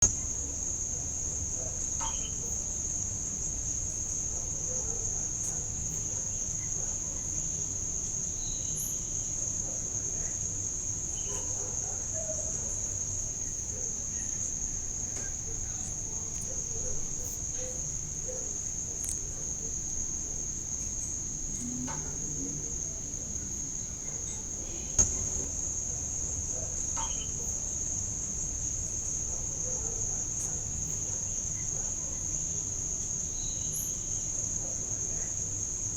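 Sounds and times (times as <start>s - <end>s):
insects trilling: 0.0s - 35.9s
faint ticks: 15.1s - 19.4s.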